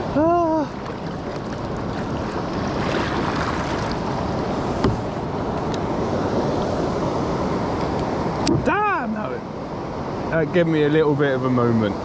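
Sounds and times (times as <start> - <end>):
river current rushing: 0.0 - 9.0.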